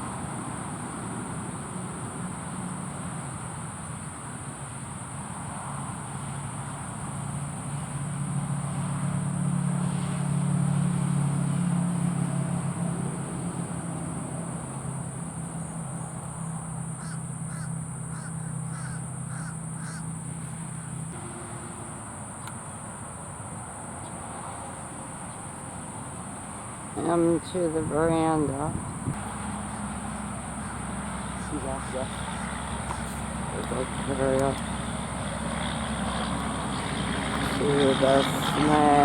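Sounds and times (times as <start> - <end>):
high insect drone: 0.0 - 39.0
bird short calls: 17.0 - 20.1
low hum: 20.2 - 24.6, 26.9 - 39.0.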